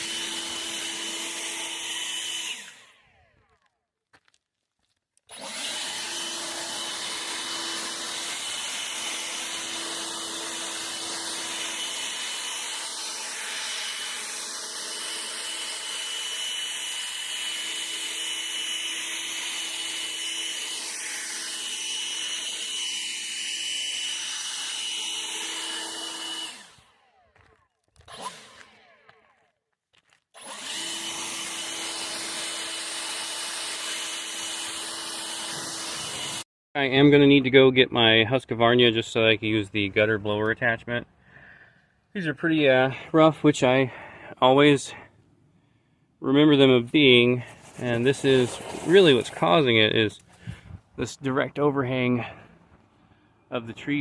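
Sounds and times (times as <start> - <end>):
leaf blower running: 0.0 - 3.7, 5.3 - 29.4, 30.4 - 36.4, 47.4 - 49.7.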